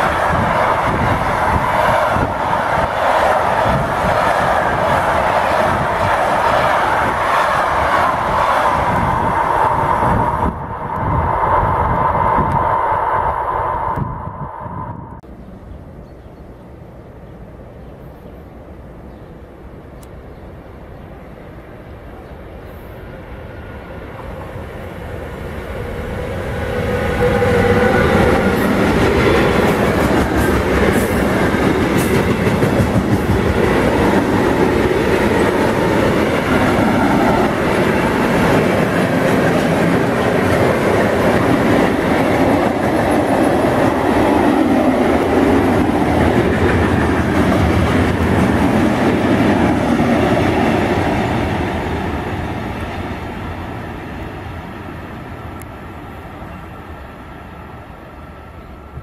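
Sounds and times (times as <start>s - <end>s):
locomotive whine: 0.0s - 15.3s, 22.7s - 59.0s
freight wagons rumbling on rails: 26.6s - 54.5s.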